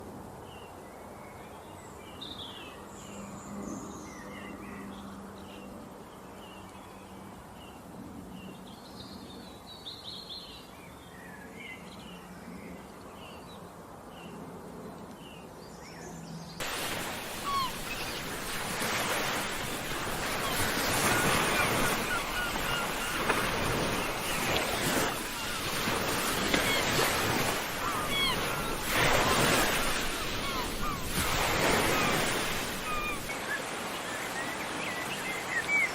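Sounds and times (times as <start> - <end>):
rushing water: 16.6 - 35.9
small birds chirping: 16.6 - 35.9.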